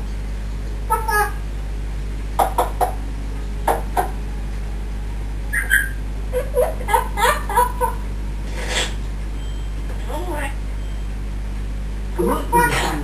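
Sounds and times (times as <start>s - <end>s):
parrot babbling: 0.9s - 1.4s, 5.5s - 8.0s
parrot whistle: 5.5s - 6.0s.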